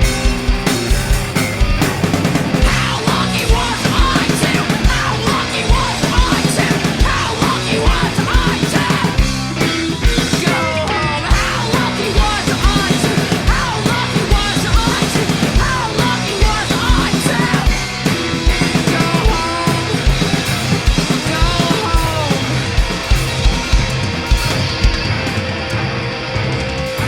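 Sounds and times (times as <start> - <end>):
drum kit kick beat: 0.0 - 10.6, 11.3 - 25.1
bass guitar: 0.0 - 27.0
distorted electric guitars: 0.0 - 27.0
person yelling vocals: 21.2 - 22.4.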